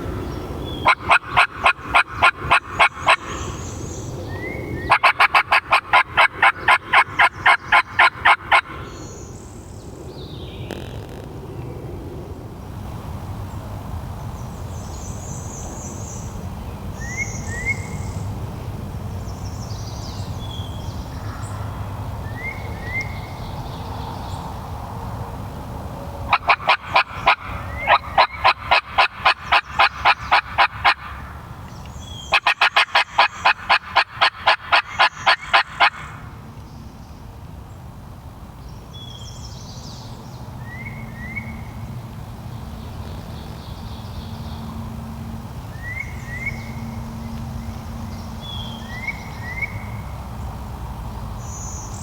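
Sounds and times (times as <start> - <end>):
rapid turkey yelps: 0.8 - 3.6, 4.8 - 9.0, 26.3 - 31.3, 32.2 - 36.2
steady low rumble: 38.4 - 52.0
faint songbird chirps: 42.6 - 50.1.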